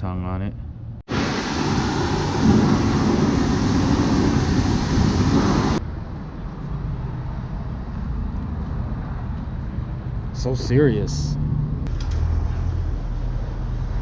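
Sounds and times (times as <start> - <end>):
rushing hiss: 1.1 - 5.8.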